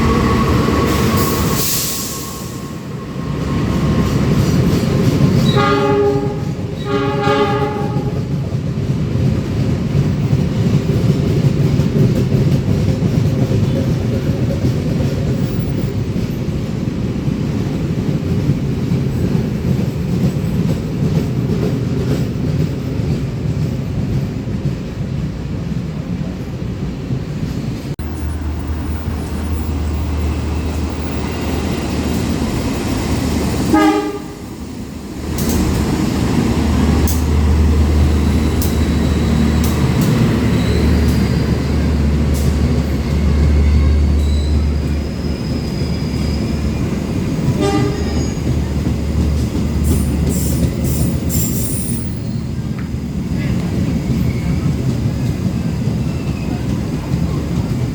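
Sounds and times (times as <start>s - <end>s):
train rumbling: 0.0s - 57.9s
train horn toot: 5.4s - 8.4s, 33.7s - 34.5s, 47.5s - 48.5s.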